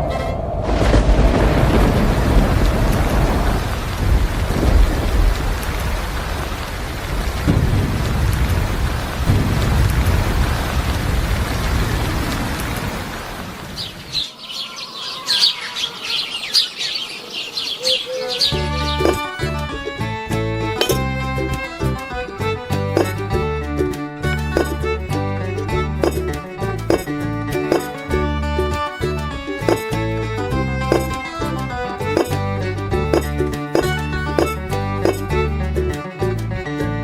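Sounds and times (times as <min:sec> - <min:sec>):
rolling thunder rumbles: 0:00.0 - 0:14.5
rain falling: 0:00.1 - 0:36.4
birds chirping rapidly: 0:12.9 - 0:19.6.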